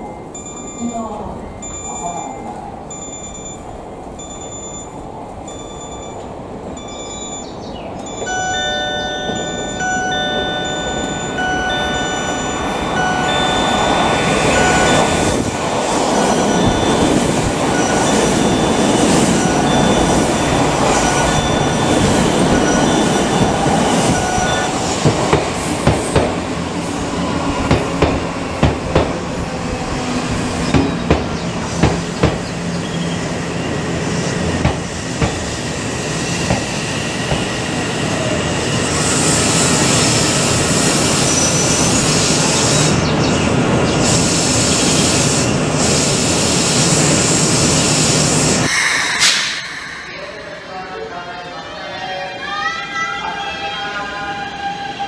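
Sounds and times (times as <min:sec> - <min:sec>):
steady high tones: 0:00.0 - 0:25.0, 0:48.6 - 0:52.3
train passing at speed: 0:00.0 - 0:55.0
train running along platform: 0:00.0 - 0:55.0.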